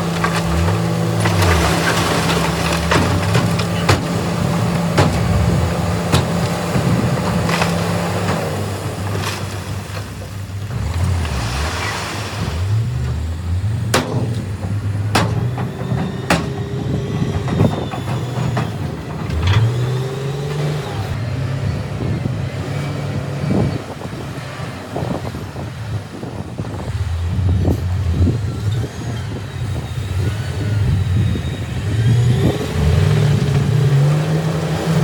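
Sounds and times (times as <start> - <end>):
diesel engine revving: 0.0 - 35.0
sharp metallic clanks: 13.1 - 21.0.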